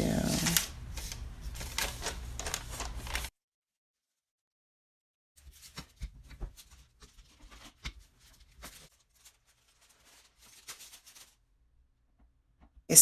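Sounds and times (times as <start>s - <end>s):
parchment paper rustling: 0.0s - 3.3s, 5.4s - 11.6s.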